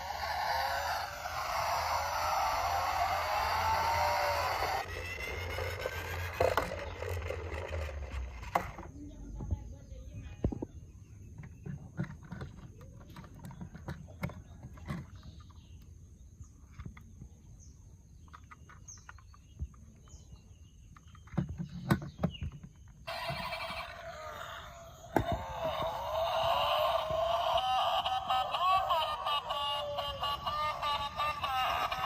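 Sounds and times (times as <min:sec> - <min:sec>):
plastic toys clicking and knocking: 0:01.1 - 0:09.6, 0:11.3 - 0:15.9, 0:18.2 - 0:20.1, 0:20.8 - 0:24.1, 0:25.1 - 0:32.0
electronic toy tune: 0:23.1 - 0:24.0, 0:25.2 - 0:32.0.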